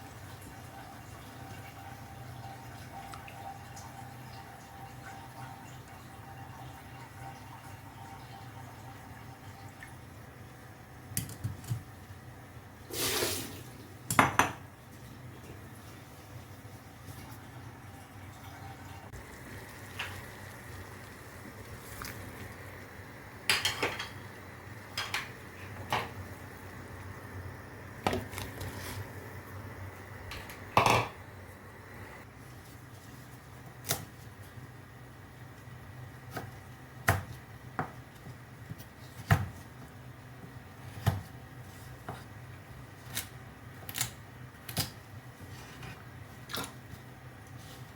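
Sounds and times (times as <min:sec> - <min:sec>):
pots and utensils clattering: 0:23.5 - 0:24.2, 0:24.9 - 0:26.2, 0:30.3 - 0:31.2.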